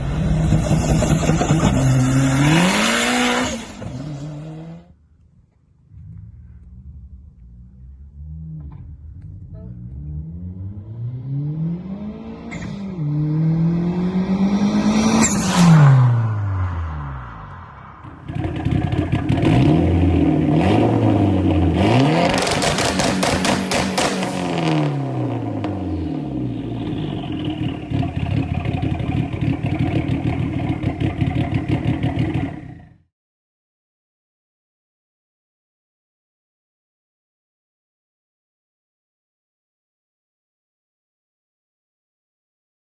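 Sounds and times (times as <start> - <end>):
car engine revving with crackles: 0.0 - 33.0.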